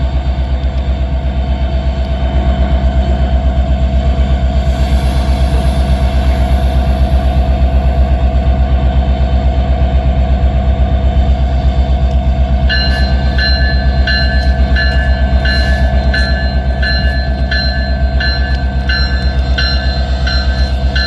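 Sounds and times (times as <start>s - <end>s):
diesel locomotive engine rumbling: 0.0s - 21.0s
locomotive bell ringing: 11.2s - 21.0s.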